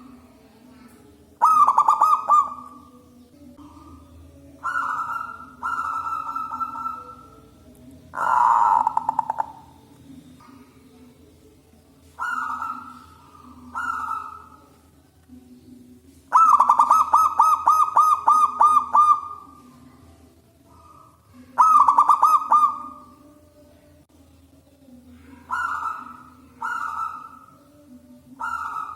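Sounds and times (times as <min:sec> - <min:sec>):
dove cooing: 0:00.0 - 0:03.0, 0:03.6 - 0:09.8, 0:12.0 - 0:14.8, 0:16.3 - 0:20.1, 0:20.7 - 0:23.3, 0:25.1 - 0:28.9.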